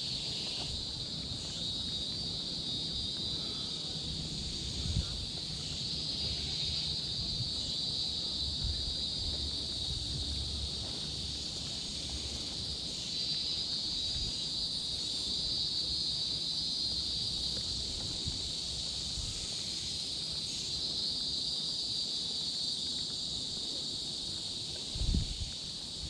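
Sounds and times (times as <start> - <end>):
insects droning: 0.0 - 26.0
low wind rumble on microphone: 3.8 - 11.9, 24.9 - 26.0.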